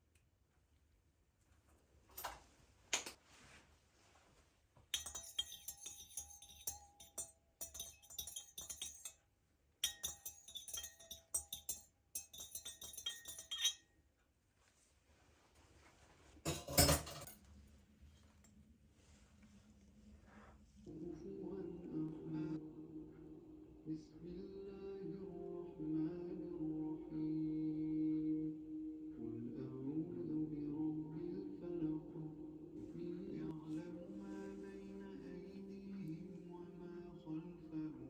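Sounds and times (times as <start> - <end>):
glassware and dishes clinking: 5.0 - 9.2, 9.8 - 13.8, 16.4 - 17.4.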